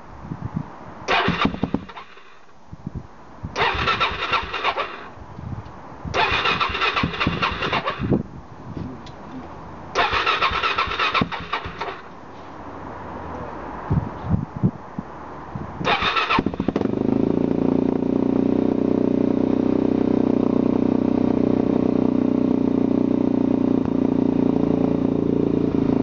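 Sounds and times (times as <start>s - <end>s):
electric starter cranking engine: 1.1s - 2.2s, 3.6s - 5.1s, 6.2s - 8.1s, 10.0s - 12.0s, 15.8s - 17.0s.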